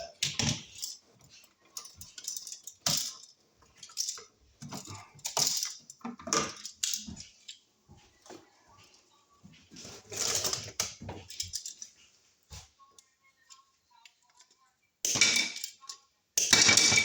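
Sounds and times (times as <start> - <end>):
metal tools clinking: 0.0 - 7.6, 10.1 - 12.0.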